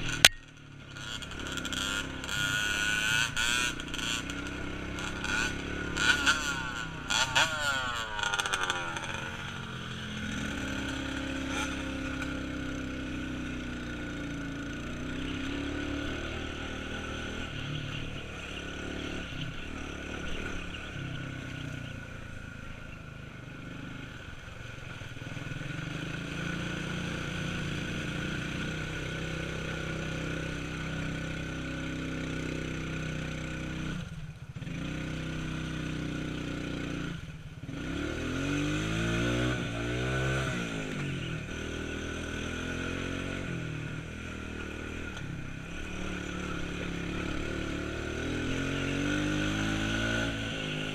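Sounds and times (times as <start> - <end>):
off-road vehicle engine revving: 0.0 - 50.9.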